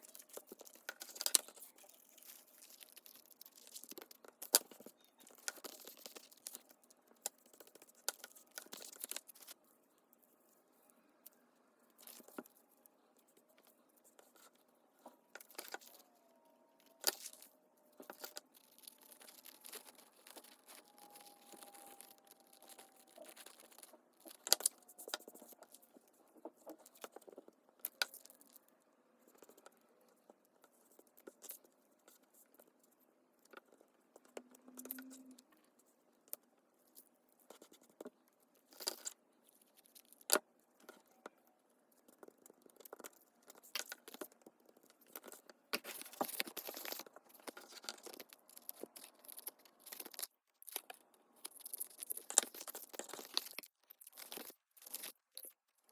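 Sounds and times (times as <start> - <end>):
paper rustling: 16.8 - 27.4.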